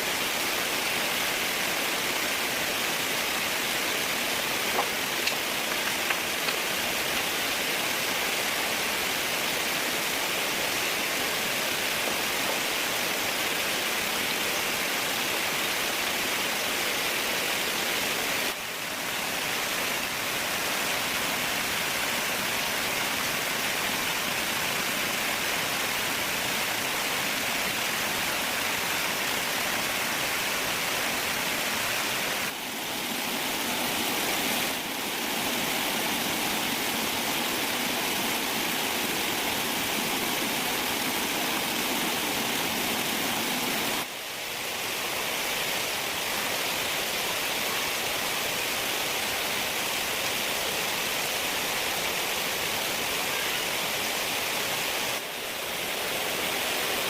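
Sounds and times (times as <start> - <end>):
running water rushing: 0.0 - 57.0.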